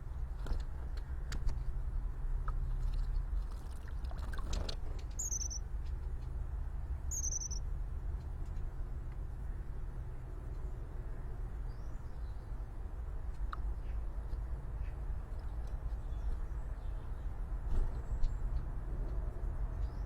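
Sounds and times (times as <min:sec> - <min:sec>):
high-pitched bird chirps: 0:05.2 - 0:05.6, 0:07.1 - 0:07.6.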